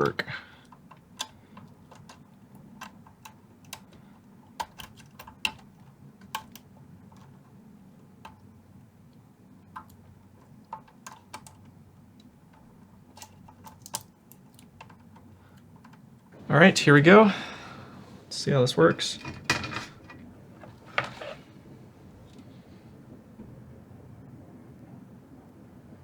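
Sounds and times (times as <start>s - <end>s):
small tools clicking on metal chassis: 0.0s - 16.4s
faint low hum: 0.0s - 26.0s.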